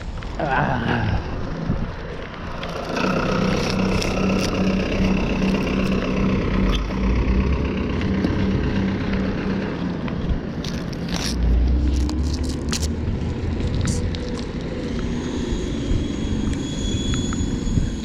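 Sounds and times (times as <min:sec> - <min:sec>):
engine idling: 0:02.5 - 0:11.9.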